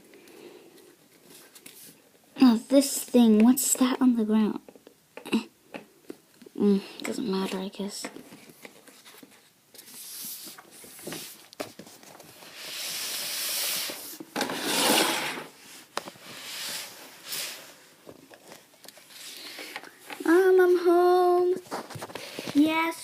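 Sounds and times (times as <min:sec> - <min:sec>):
objects rubbing and scraping: 0:08.4 - 0:20.7.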